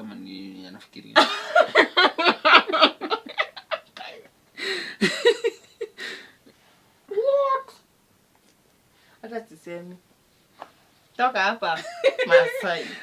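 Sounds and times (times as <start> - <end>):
person laughing: 1.2 - 4.0, 4.6 - 6.2, 11.8 - 13.0.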